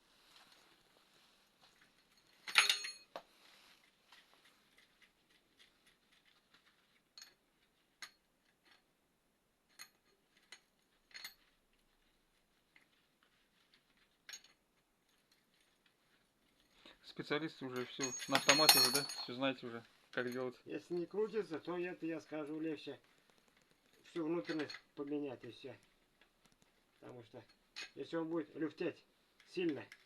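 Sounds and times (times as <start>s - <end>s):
metal tools clinking and clattering: 1.6s - 3.2s, 9.7s - 11.7s, 16.6s - 21.7s, 23.9s - 26.3s, 27.2s - 28.7s.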